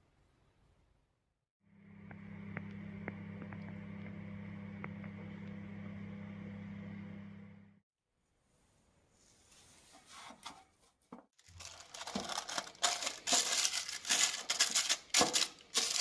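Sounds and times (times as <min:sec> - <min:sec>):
electric kitchen motor humming: 0:01.6 - 0:07.8.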